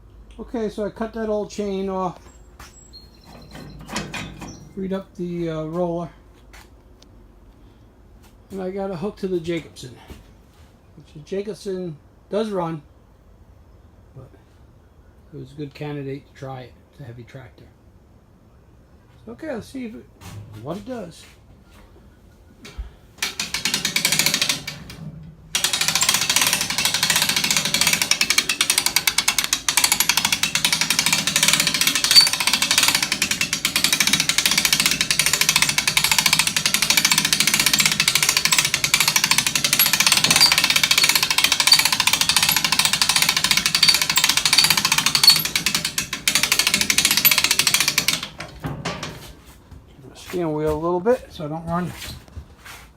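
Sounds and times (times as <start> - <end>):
winch ratchet clicking: 23.2 - 24.9, 25.6 - 48.4.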